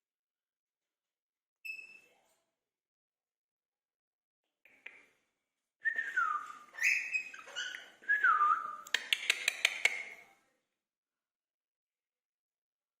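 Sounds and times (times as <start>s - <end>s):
parrot whistling: 5.9s - 8.8s
parrot sharp clicks: 8.9s - 10.1s.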